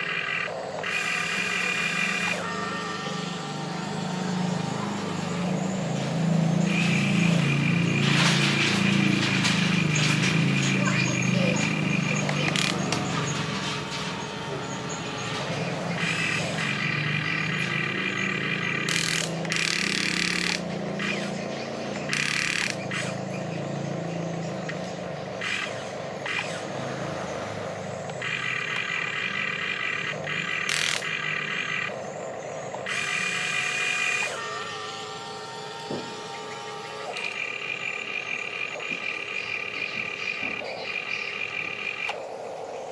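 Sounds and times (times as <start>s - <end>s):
electric motors whining: 0.0s - 42.9s.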